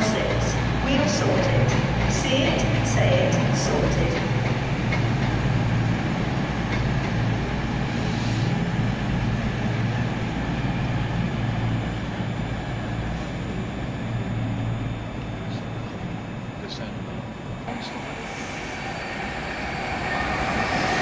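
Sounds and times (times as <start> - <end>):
train humming: 0.0 - 21.0
rumbling hiss: 17.6 - 21.0.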